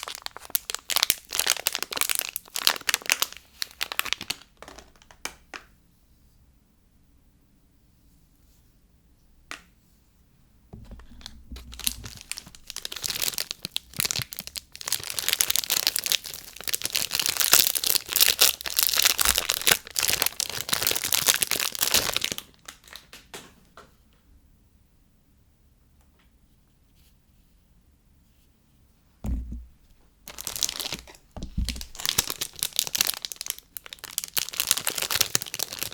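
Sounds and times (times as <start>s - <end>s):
packaging crinkling and tearing: 0.0s - 5.2s, 10.9s - 23.4s, 30.3s - 35.9s.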